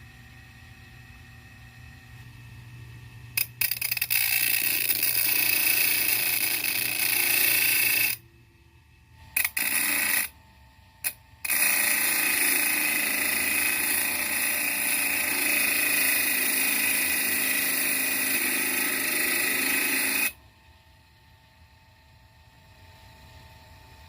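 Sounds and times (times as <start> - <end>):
electric grinder motor running: 3.6 - 8.2, 9.4 - 10.3, 11.5 - 20.4.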